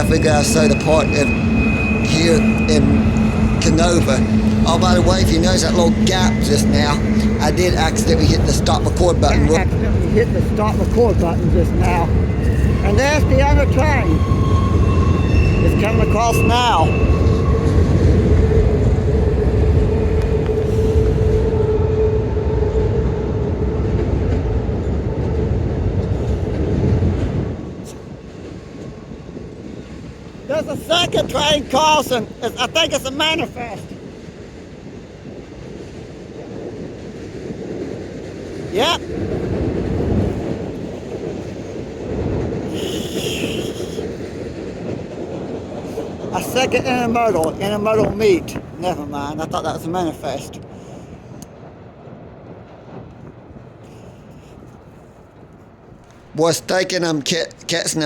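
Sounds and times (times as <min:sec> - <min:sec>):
train wheel squeal: 0:00.0 - 0:23.0, 0:42.7 - 0:44.2
freight train rumbling on bridge: 0:00.0 - 0:58.0.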